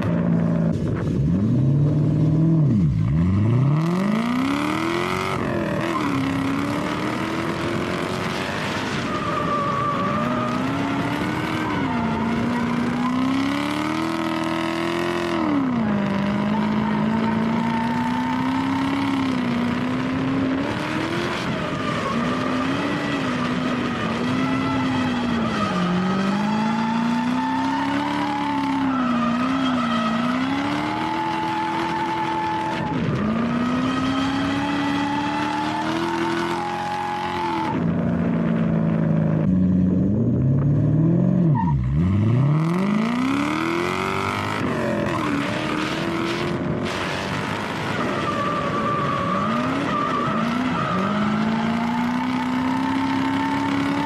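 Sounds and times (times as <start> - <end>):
car engine revving: 0.0 - 54.0
tyres squealing: 23.8 - 33.0.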